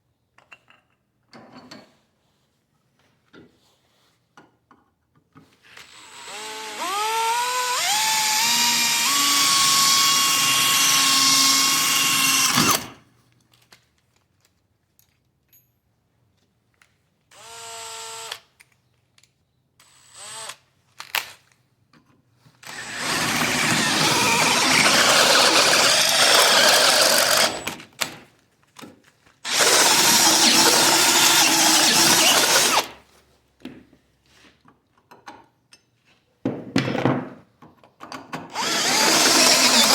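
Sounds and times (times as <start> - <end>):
angle grinder whining: 6.2 - 13.0, 22.6 - 27.8, 29.5 - 33.0, 38.5 - 39.9
grinder grinding on steel: 22.6 - 27.8, 29.5 - 33.0, 38.6 - 39.9.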